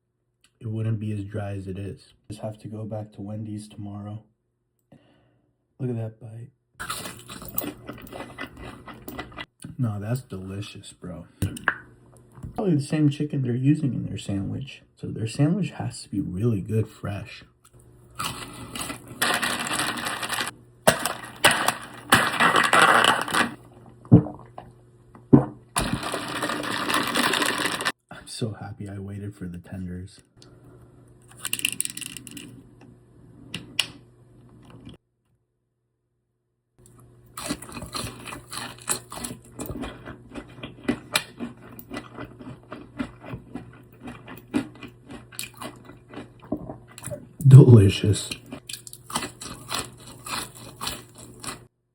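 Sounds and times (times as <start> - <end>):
crunching fried chicken: 6.8 - 9.5, 18.1 - 23.5, 25.8 - 28.0, 37.3 - 51.7.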